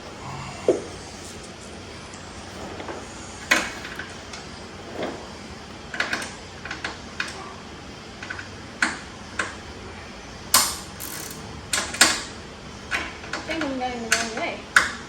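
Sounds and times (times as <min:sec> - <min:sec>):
hand tools clicking and knocking: 0:10.6 - 0:12.3.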